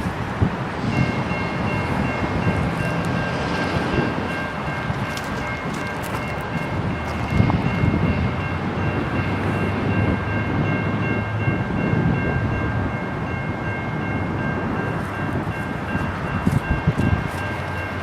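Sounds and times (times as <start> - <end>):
freight train rumbling past: 0.0 - 18.0.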